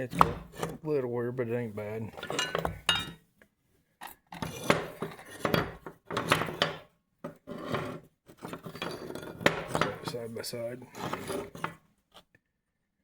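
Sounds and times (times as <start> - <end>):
metal parts clinking and scraping: 7.6 - 10.3.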